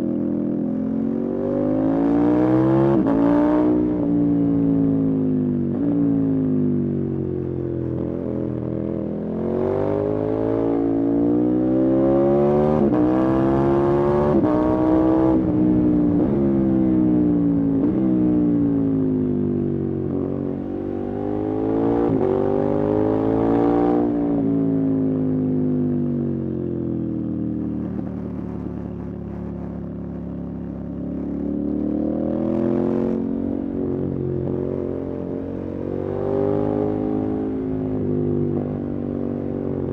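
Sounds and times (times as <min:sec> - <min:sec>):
motorcycle engine revving: 0:27.5 - 0:39.9.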